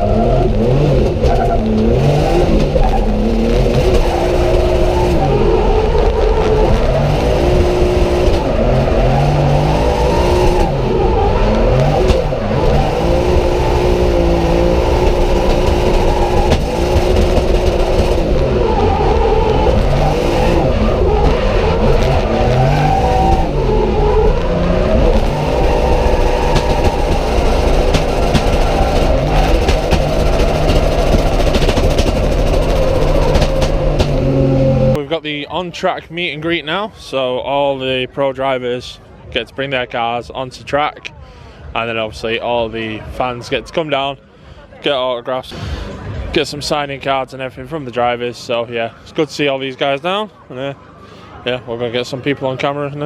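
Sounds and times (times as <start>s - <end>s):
car engines revving hard: 0.0s - 35.0s.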